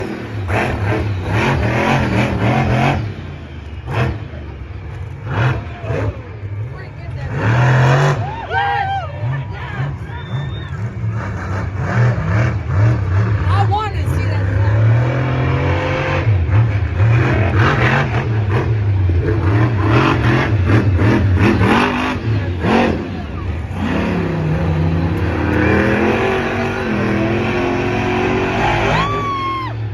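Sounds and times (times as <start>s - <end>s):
truck engine revving: 0.0s - 29.9s.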